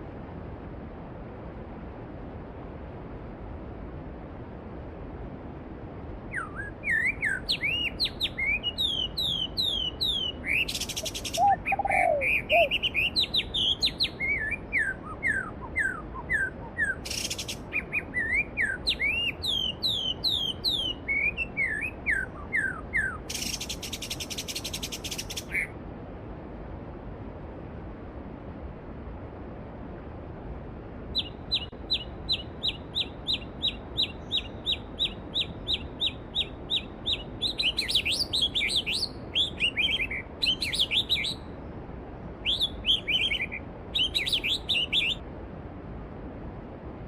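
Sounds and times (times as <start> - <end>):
songbirds chirping: 6.3 - 25.8, 31.1 - 45.3
buzzy bird trills: 10.5 - 13.1.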